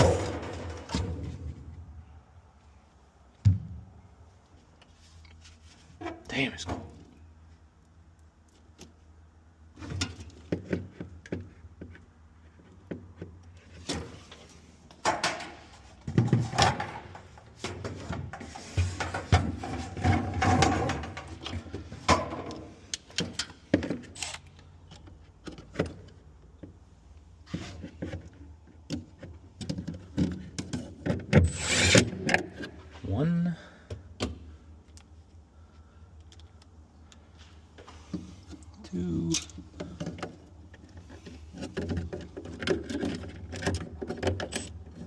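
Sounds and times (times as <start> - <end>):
parts clicking and knocking: 27.8 - 32.8, 36.1 - 37.3, 38.1 - 45.0.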